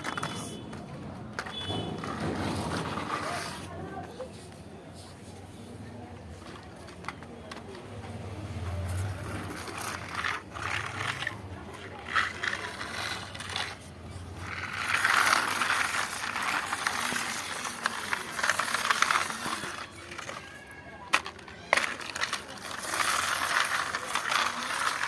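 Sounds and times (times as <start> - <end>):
toy tractor rattling and scraping: 0.0 - 25.0
clicking of small gears: 7.1 - 25.0.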